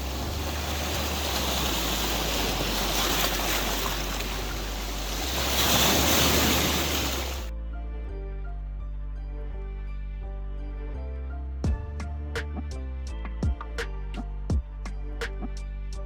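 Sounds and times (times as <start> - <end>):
sea waves washing onto beach: 0.0 - 7.5
wind buffeting microphone: 0.0 - 7.5
soft music: 7.5 - 16.0.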